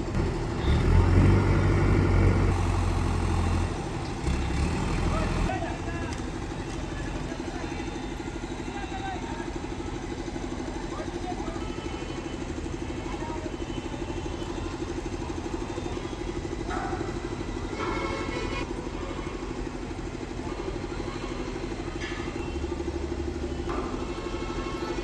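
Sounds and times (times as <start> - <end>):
engine pulsing hum: 0.0 - 5.5.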